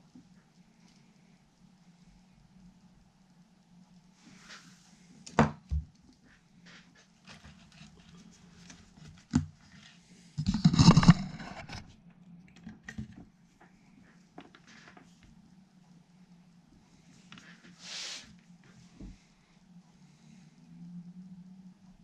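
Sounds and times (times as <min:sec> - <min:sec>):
steady low hum: 0:00.0 - 0:22.0
scraping rustle: 0:06.2 - 0:11.9.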